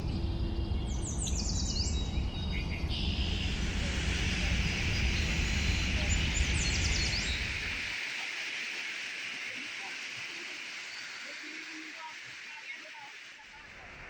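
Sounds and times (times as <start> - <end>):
birds chirping: 0.6 - 14.0
steady hiss: 3.2 - 14.0.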